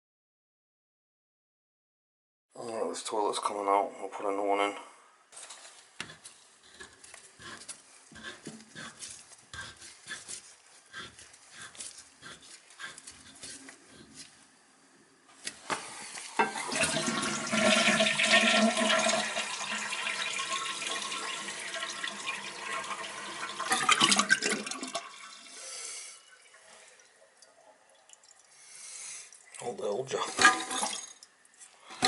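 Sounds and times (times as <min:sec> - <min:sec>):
toilet flushing: 0:15.9 - 0:28.4, 0:30.0 - 0:31.2.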